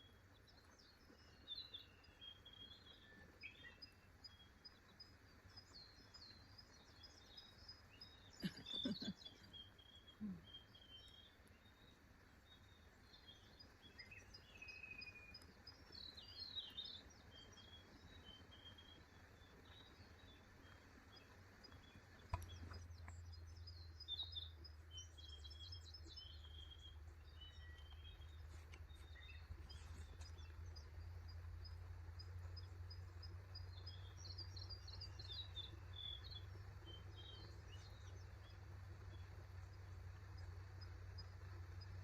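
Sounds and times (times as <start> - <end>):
birds chirping and singing: 0.3 - 42.0
low steady rumble: 15.4 - 42.0.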